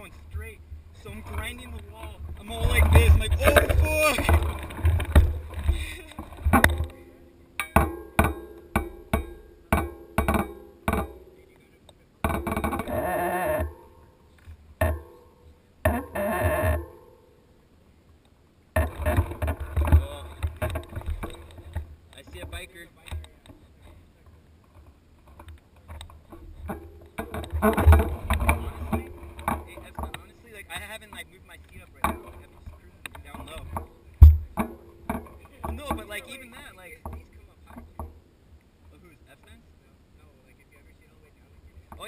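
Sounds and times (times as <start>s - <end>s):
mountain bike rattling: 0.0s - 11.6s, 18.8s - 38.3s.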